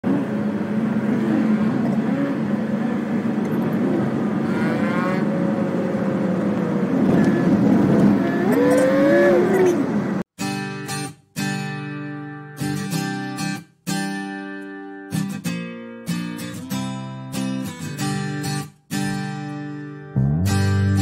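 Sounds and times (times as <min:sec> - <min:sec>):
car engine revving: 0:00.0 - 0:10.2.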